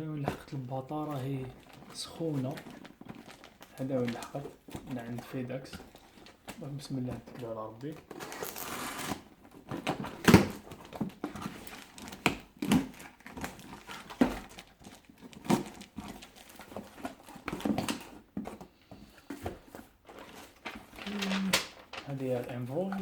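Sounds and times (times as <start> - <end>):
cardboard package tearing: 1.5 - 4.8, 8.0 - 18.3, 20.0 - 23.0.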